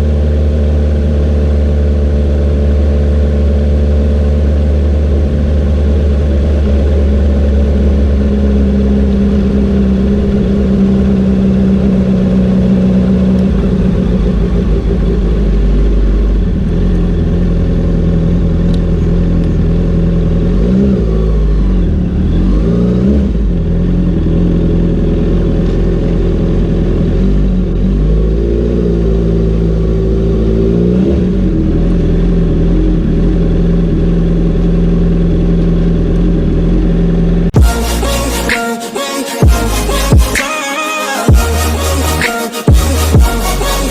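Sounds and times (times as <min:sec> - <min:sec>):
motorcycle engine revving: 0:00.0 - 0:40.6, 0:41.3 - 0:43.9.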